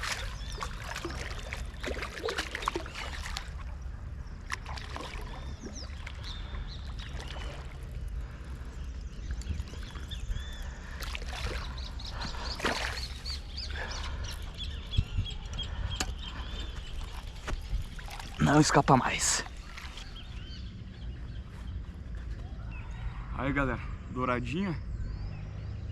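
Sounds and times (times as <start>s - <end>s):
water splashes and knocks: 0.0s - 3.8s, 4.4s - 7.9s, 11.0s - 13.4s, 15.9s - 20.2s
birds chirping: 0.0s - 25.9s.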